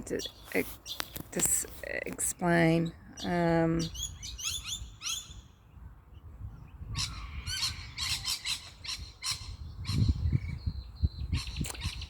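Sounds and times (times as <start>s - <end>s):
birds giving harsh screechy calls: 3.2s - 5.5s, 6.9s - 12.0s.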